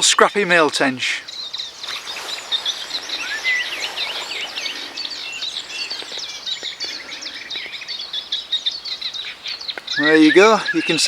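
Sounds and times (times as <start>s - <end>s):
songbirds chirping and whistling: 0.0s - 11.0s.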